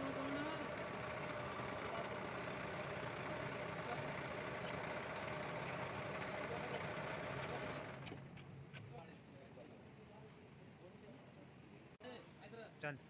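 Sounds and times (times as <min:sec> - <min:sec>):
motor engine idling: 0:00.0 - 0:08.2.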